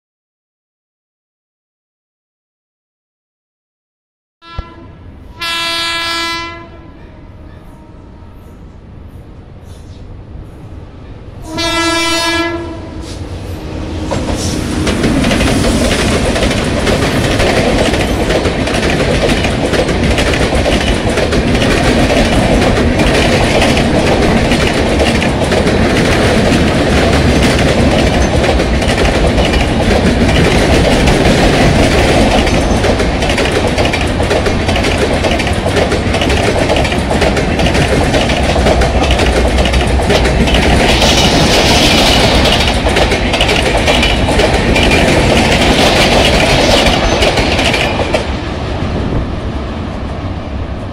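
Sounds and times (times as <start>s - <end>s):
train horn blast: 4.4s - 8.7s, 11.4s - 14.7s
train coaches rumbling past: 4.4s - 50.9s.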